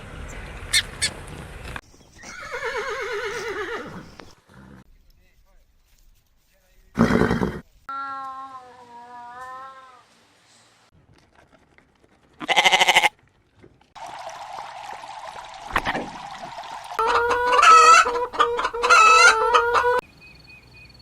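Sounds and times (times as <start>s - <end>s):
chickens clucking and crowing: 17.0s - 20.0s.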